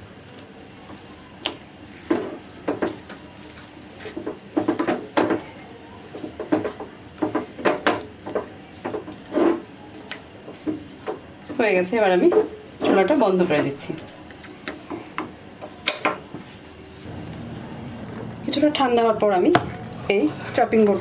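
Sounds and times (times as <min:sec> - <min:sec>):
spatula scraping a pan: 0:01.9 - 0:15.0, 0:20.0 - 0:21.0.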